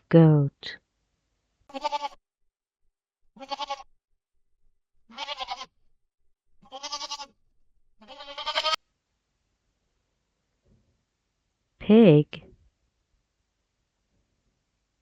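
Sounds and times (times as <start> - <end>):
goat bleating: 1.7 - 2.2, 3.4 - 3.9, 5.1 - 5.9, 6.6 - 7.4, 8.0 - 8.8.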